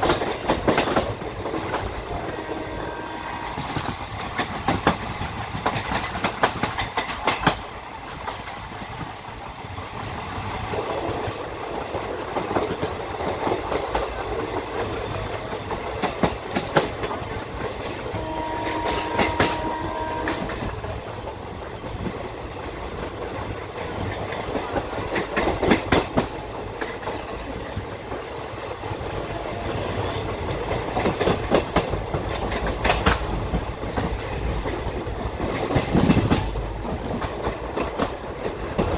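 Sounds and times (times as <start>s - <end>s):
train wheels clattering on track: 0.0s - 38.9s
train horn: 2.0s - 3.8s, 18.1s - 20.7s.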